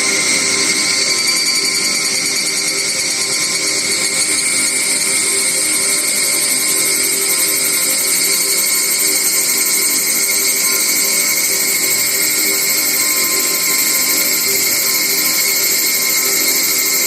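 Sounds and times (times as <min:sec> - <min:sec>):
insects buzzing: 0:07.0 - 0:17.0.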